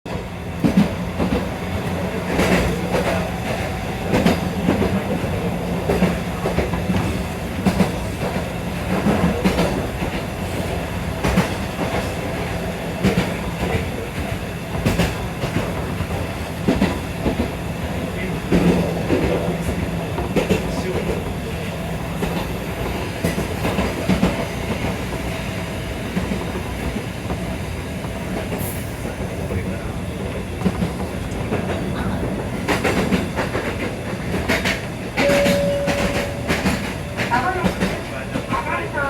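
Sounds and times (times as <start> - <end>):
train running hum: 0.0 - 39.0
wheels clacking over rail joints: 30.6 - 39.0.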